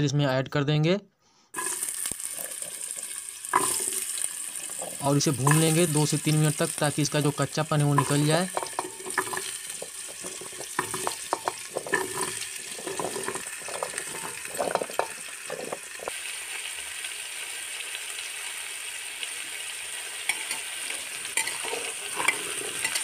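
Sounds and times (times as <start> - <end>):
carrots sizzling in oil: 1.6 - 23.0
carrot pieces clattering into pot: 3.6 - 6.8, 7.8 - 16.1
spoon knocking: 7.9 - 16.1.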